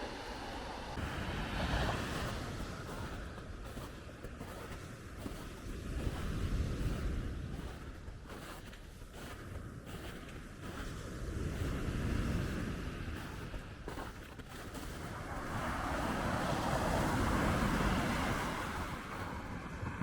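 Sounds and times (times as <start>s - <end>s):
surf washing onto shore: 0.0s - 3.4s, 14.9s - 20.0s
wind: 0.0s - 20.0s.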